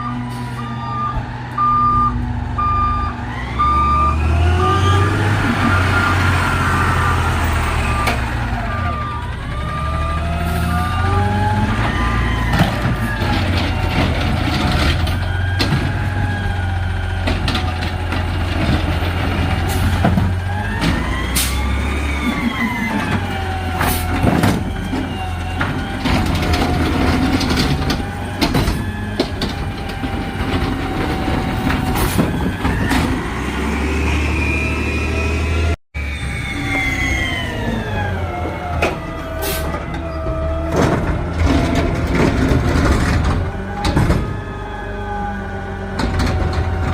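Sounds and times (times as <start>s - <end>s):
reversing beeper: 0.0s - 14.1s, 33.6s - 40.7s
garbage truck engine revving: 0.2s - 46.9s.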